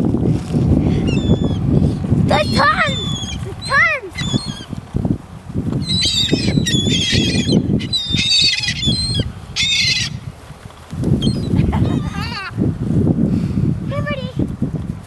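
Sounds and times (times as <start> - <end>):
seagulls squawking: 0.9 - 4.8, 5.8 - 10.3, 11.2 - 12.6.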